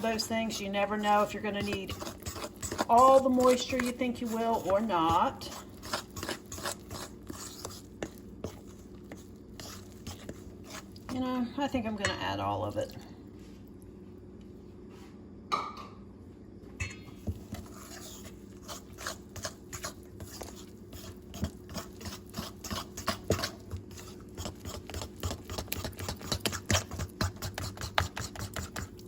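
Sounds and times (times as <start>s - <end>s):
fork stirring batter in a bowl: 0.0s - 13.1s, 17.2s - 29.0s.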